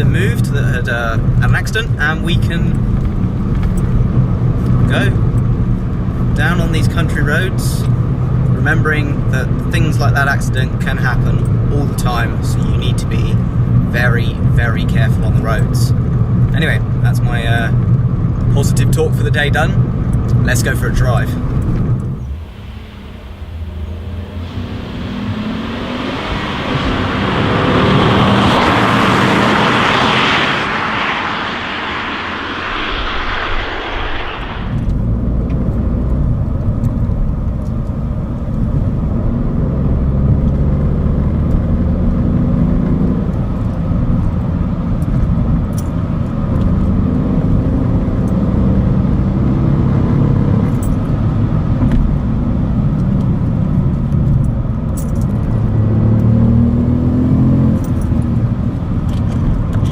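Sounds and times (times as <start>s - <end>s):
car engine accelerating through gears: 0.0s - 59.9s
loud rushing noise: 21.9s - 35.5s.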